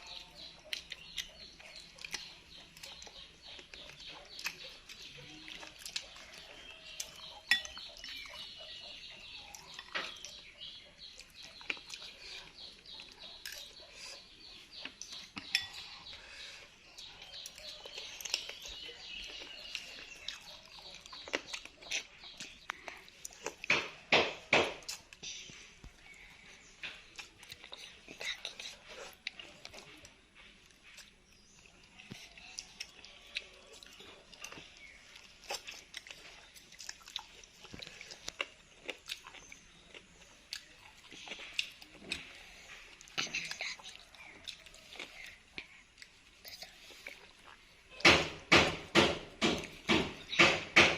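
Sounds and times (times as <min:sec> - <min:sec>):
person chewing with wet smacks: 0:00.0 - 0:48.0
spoon and bowl clinking: 0:07.5 - 0:07.8, 0:15.4 - 0:15.9.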